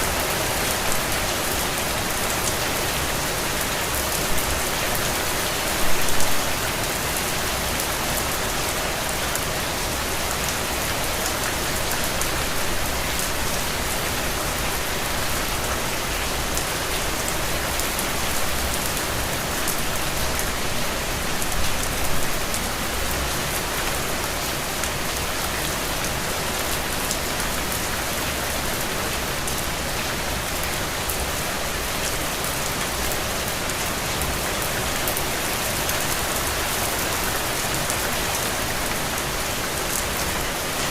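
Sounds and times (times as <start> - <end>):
rain falling on a surface: 0.0 - 40.9.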